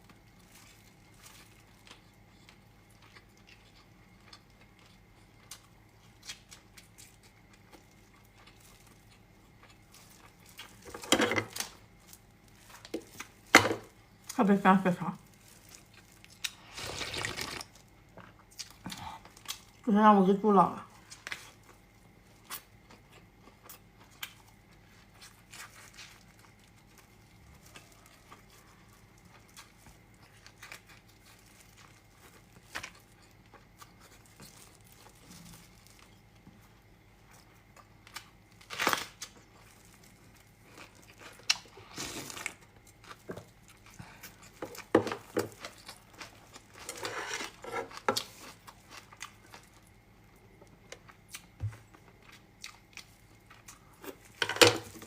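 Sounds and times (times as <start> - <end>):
soft chewing: 0.0 - 14.4, 15.2 - 19.8, 20.9 - 38.6, 39.2 - 54.4.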